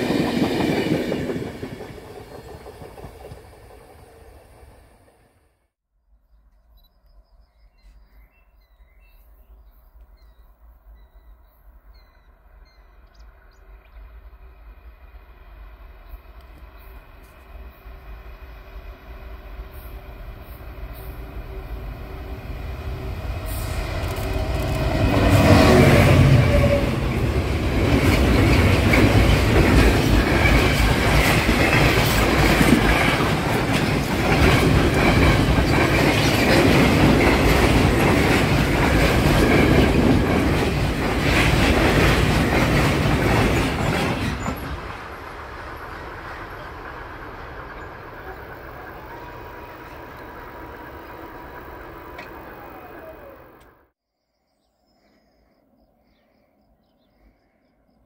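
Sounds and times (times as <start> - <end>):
freight train rolling past: 0.0 - 5.6, 10.6 - 54.0.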